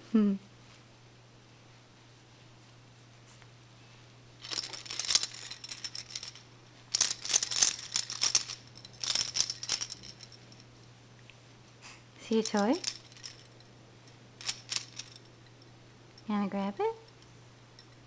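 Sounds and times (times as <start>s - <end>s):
baby rattle shaking: 4.4s - 10.6s, 12.3s - 13.7s, 14.4s - 15.6s.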